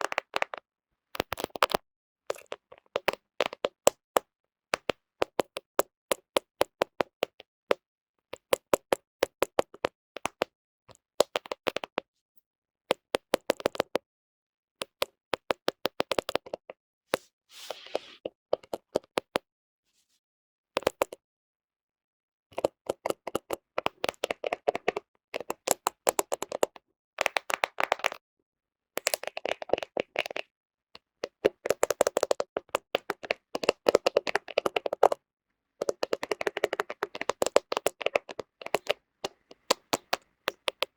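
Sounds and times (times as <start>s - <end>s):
short scratching stroke: 17.2s - 18.2s
fingernails tapping on phone: 35.8s - 40.9s.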